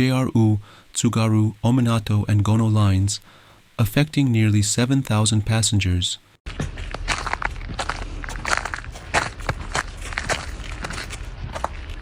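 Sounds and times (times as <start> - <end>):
footsteps crunching in snow: 6.5 - 12.0.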